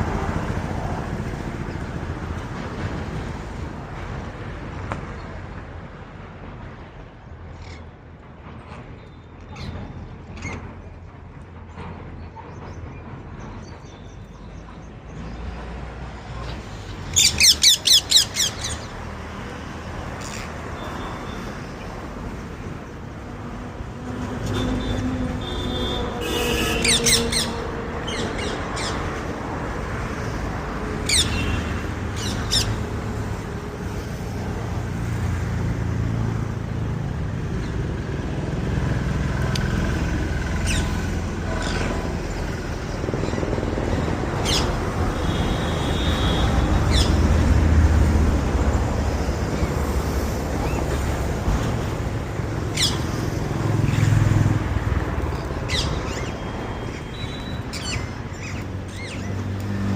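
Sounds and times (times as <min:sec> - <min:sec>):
parrot chirping: 0:17.1 - 0:18.9, 0:52.8 - 0:53.0.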